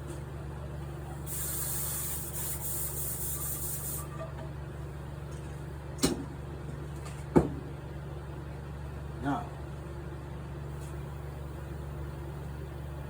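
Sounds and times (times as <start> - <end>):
spray gun hissing: 1.3 - 4.0.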